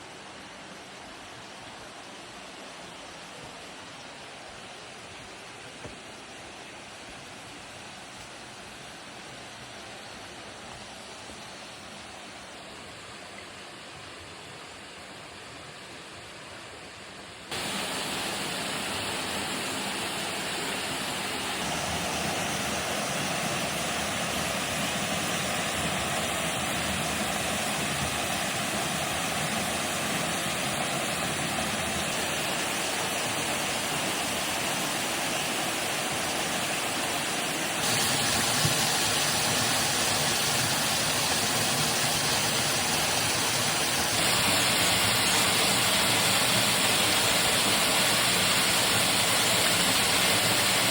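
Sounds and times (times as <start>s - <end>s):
waterfall rushing: 17.5s - 50.9s.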